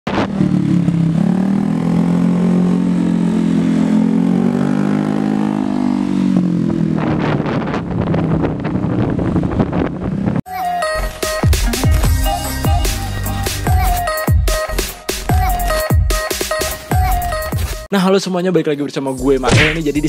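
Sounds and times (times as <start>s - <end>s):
scooter engine exhaust note: 0.1s - 9.8s.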